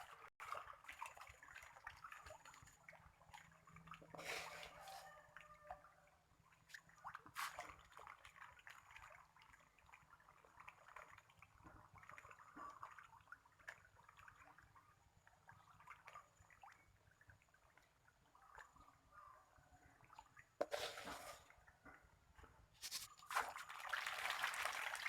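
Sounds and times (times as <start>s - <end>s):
fish splashing and slurping: 0.0s - 24.8s.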